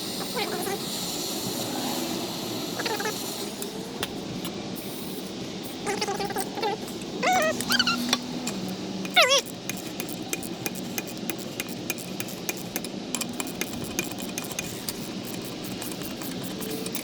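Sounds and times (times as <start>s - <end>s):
hand tools clicking on metal: 6.2s - 17.0s
short high squeal: 7.2s - 8.2s.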